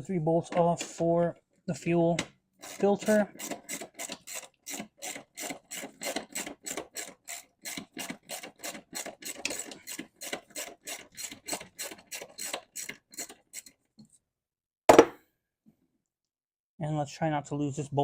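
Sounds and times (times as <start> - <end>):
sharp knock: 14.9 - 15.2.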